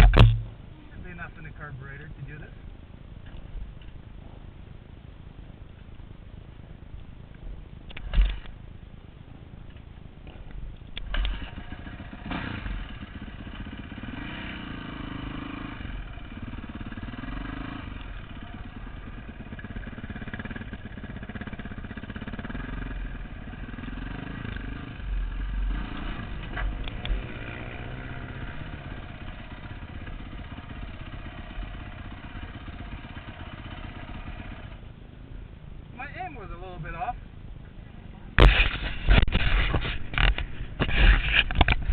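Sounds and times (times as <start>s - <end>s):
motorcycle engine revving: 11.0s - 34.9s.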